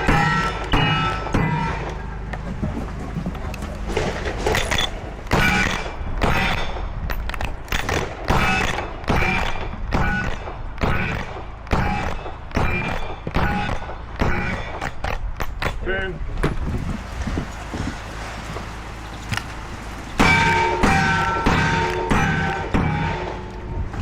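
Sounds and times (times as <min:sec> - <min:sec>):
steel target ringing: 0:00.0 - 0:02.1, 0:20.2 - 0:23.9
gunshots: 0:07.7 - 0:15.2.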